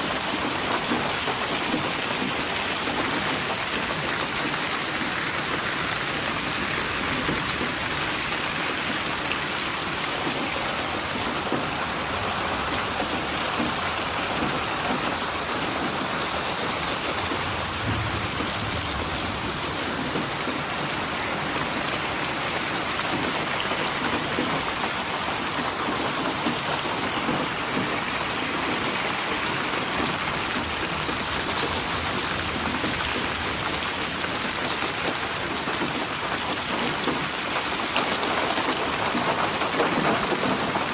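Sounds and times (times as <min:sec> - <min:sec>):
rain pattering: 0:00.0 - 0:40.9
low rumble: 0:17.5 - 0:19.9.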